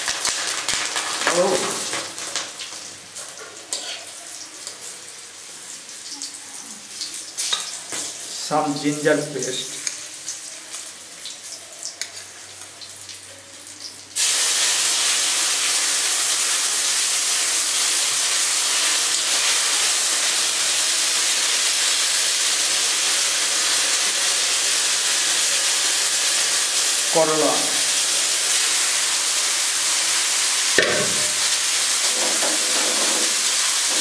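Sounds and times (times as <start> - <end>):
spices crackling in oil: 0.0 - 27.2
loud steady sizzle: 0.0 - 34.0.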